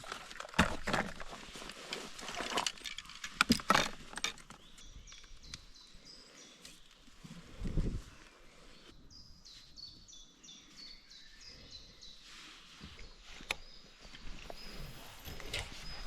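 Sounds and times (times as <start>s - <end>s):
faint high bird chirps: 8.1s - 16.0s.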